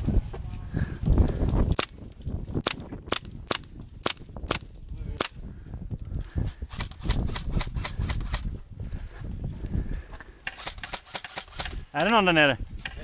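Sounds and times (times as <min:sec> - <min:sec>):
airsoft gun shots: 0:10.5 - 0:11.8.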